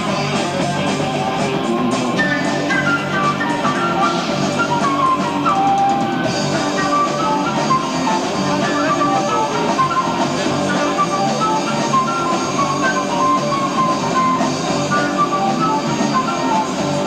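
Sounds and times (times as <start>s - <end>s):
bass guitar: 0.0s - 17.0s
drum kit: 0.0s - 17.0s
electric guitar: 0.0s - 17.0s
held melody notes: 0.0s - 17.0s.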